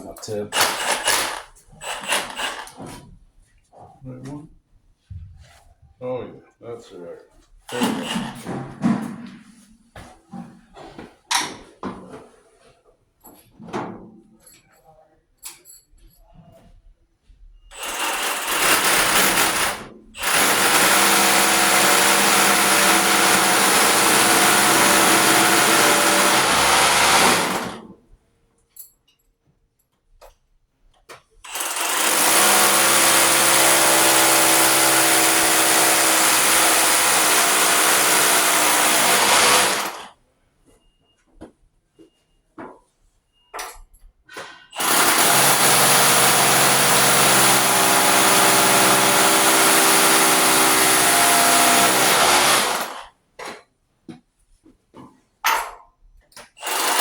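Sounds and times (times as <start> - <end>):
hammer drill boring concrete: 0.6 - 2.9, 7.7 - 8.4, 17.7 - 27.9, 31.5 - 40.1, 44.8 - 53.1, 56.6 - 57.0.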